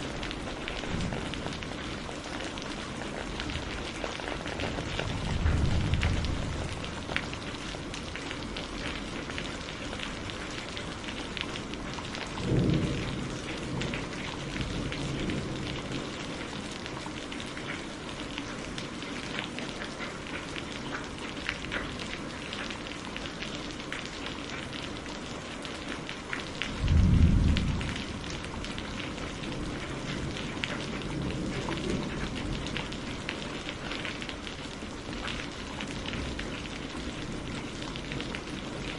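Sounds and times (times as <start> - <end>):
low thunder rumbles: 0.0 - 8.2, 12.3 - 16.6, 26.7 - 33.2
heavy rain pattering: 0.0 - 38.9.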